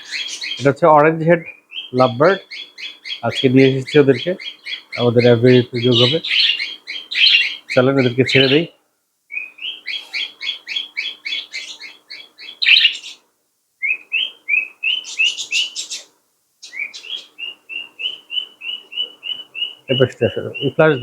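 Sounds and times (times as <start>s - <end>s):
faint steady hum: 0.0s - 21.0s
lovebirds chirping: 0.0s - 21.0s.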